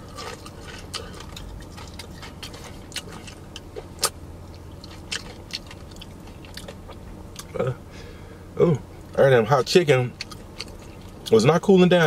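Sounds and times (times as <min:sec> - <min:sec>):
chewing crispy food: 0:00.0 - 0:07.7, 0:09.6 - 0:11.5
car cabin hum: 0:00.0 - 0:12.0.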